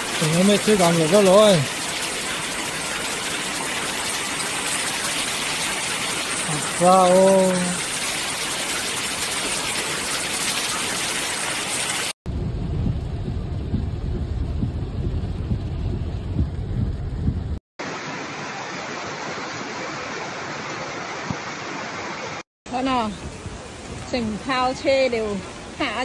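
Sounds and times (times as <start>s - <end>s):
rain rumbling inside a car: 0.0s - 10.8s, 11.6s - 17.6s
heavy rain pouring: 0.0s - 26.0s.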